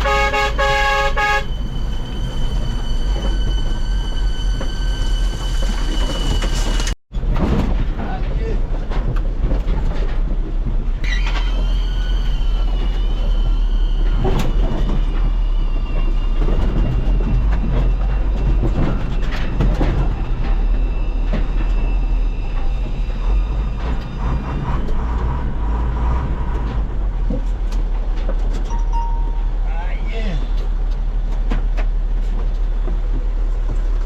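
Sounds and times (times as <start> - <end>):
heavy truck engine and road rumble: 0.0 - 34.0
high metal squeaks: 0.6 - 7.0.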